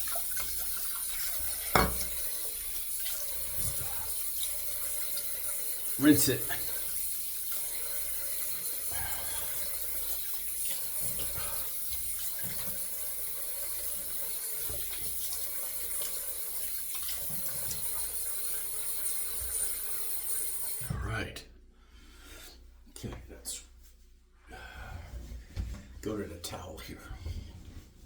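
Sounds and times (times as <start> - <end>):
tap water running into sink: 0.0 - 20.9.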